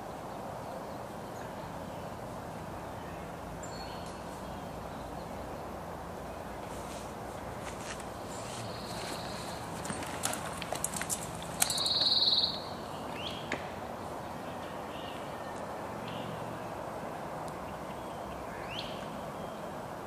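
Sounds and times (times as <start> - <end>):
outdoor background noise: 0.0 - 20.0
short rising bird chirps: 11.7 - 12.7.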